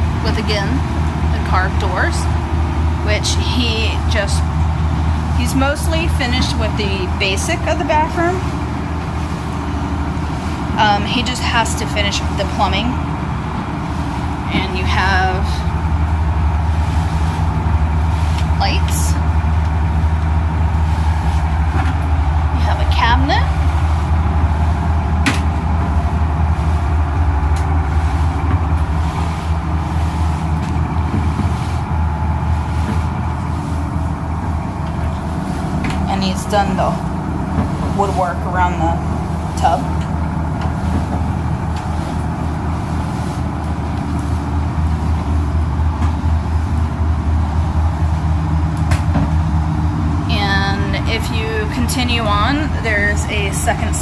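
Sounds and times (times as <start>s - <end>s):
boat engine low drone: 0.0s - 54.0s.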